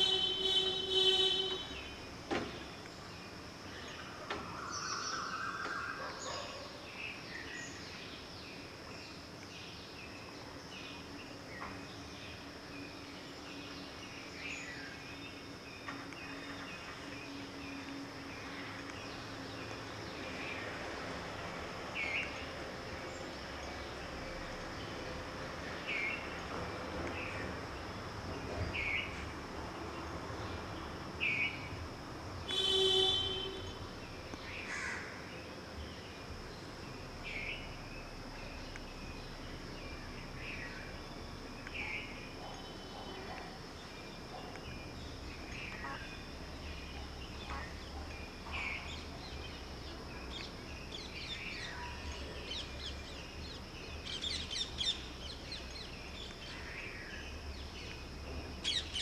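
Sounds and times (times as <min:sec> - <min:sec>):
brief honk: 0:00.0 - 0:01.8, 0:32.5 - 0:33.8
high insect trill: 0:00.0 - 0:59.0.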